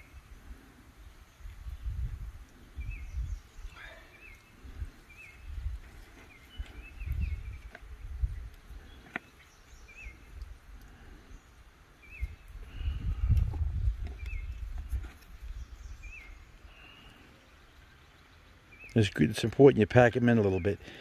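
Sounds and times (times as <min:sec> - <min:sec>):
songbird chirping: 0:00.0 - 0:21.0
low rumbling buffets: 0:09.6 - 0:17.9.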